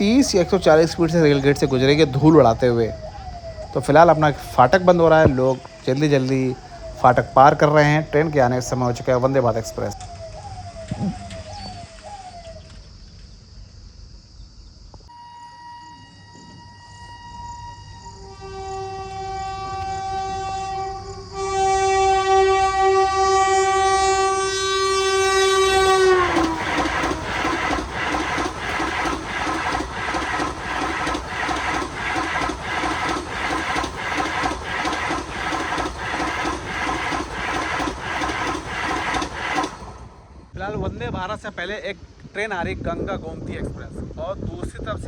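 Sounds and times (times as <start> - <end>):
train horn: 15.1 - 39.8
train wheels clattering over rail joints: 24.8 - 40.3.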